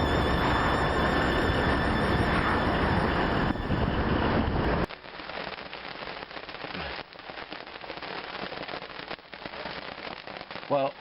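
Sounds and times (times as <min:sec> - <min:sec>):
music: 0:00.0 - 0:03.8
heavy rain patter: 0:00.0 - 0:11.0.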